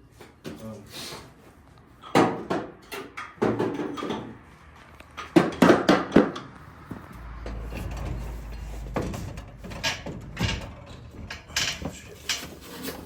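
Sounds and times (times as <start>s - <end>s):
sharp knocks and clunks: 5.2s - 13.0s
low steady hum: 6.6s - 12.5s.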